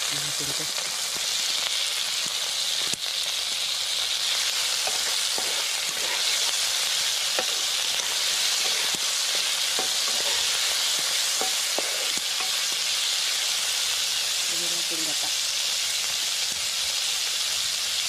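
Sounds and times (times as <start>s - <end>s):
food sizzling in a wok: 0.0s - 18.0s
wooden spatula scraping a pan: 4.8s - 6.6s, 7.4s - 12.8s.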